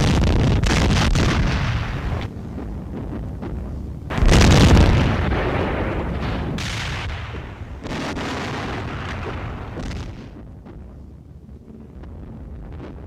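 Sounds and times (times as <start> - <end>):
tank gun firing: 0.0 - 2.3, 4.1 - 10.4
long rolling rumble: 0.0 - 13.0
weaker crack: 0.0 - 13.0.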